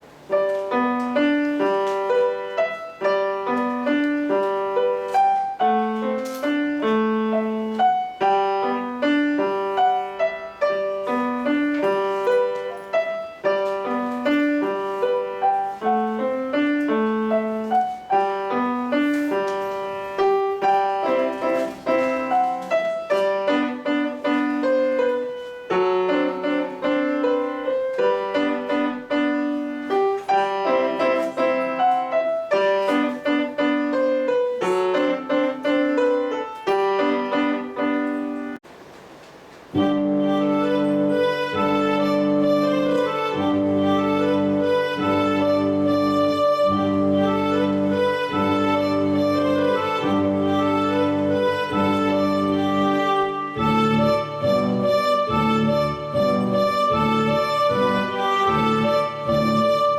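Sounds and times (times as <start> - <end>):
solo piano piece: 0.0 - 59.9.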